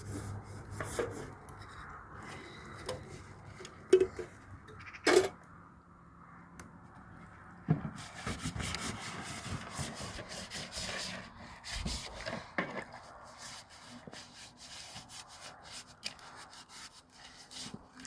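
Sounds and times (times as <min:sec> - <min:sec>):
cloth scrubbing a surface: 0:08.0 - 0:12.5.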